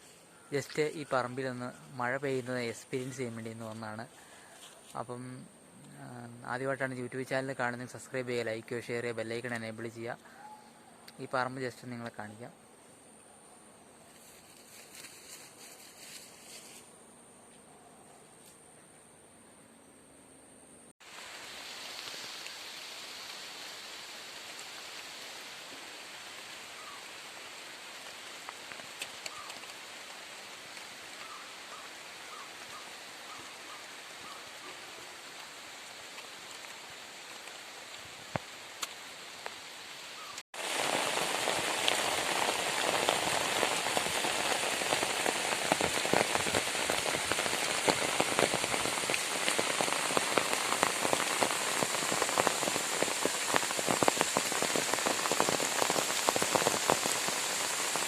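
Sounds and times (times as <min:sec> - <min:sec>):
rain falling: 0:21.0 - 0:58.0.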